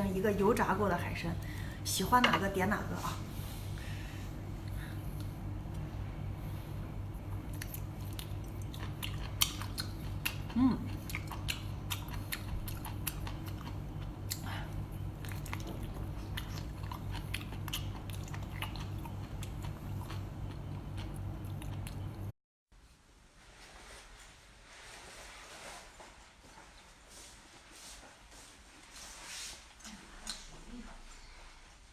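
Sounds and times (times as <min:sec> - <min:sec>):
chewing and biting seafood: 0:07.4 - 0:22.3.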